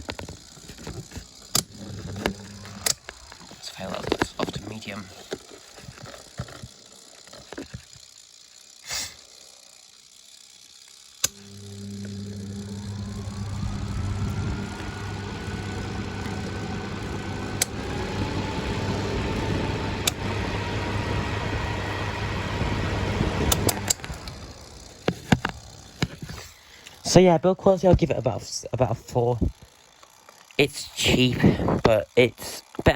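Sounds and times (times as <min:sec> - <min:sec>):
fan motor humming and whining: 0:00.0 - 0:32.9
fan switch click: 0:17.2 - 0:20.3, 0:22.5 - 0:24.5.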